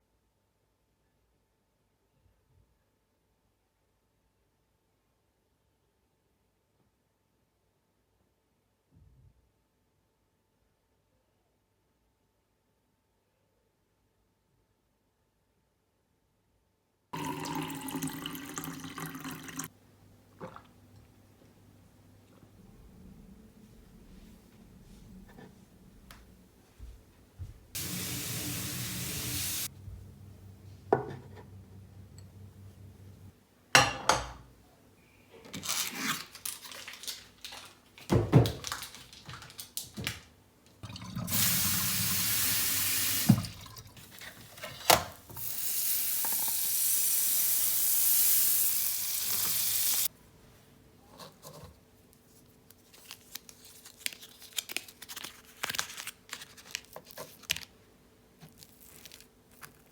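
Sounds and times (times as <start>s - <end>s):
tap running into sink: 41.2s - 44.1s.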